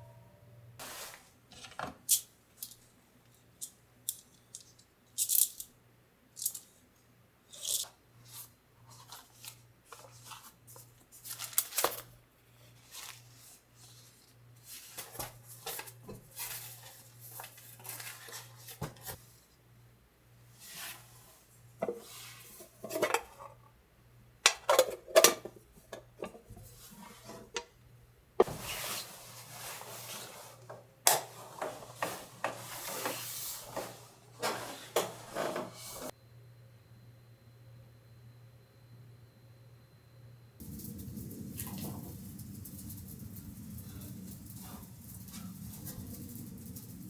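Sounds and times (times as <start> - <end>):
faint low hum: 36.2 - 47.0.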